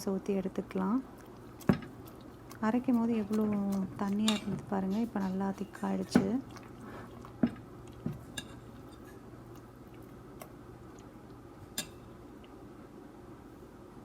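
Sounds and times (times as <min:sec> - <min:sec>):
steady low hum: 0:00.0 - 0:14.0
spoon clinking against bowl: 0:04.2 - 0:05.8.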